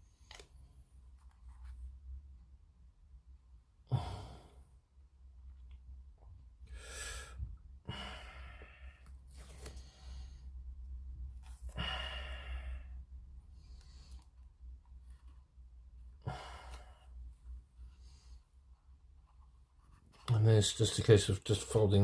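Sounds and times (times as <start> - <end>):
person exhaling heavily: 3.9 - 4.6, 6.7 - 9.0, 11.7 - 13.0, 16.2 - 17.1.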